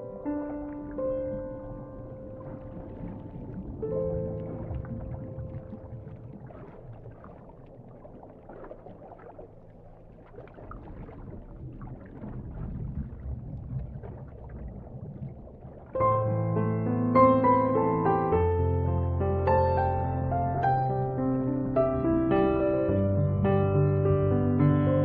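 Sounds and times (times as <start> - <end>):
piano music: 0.0 - 7.2, 16.0 - 25.0
ocean water washing: 0.0 - 18.4.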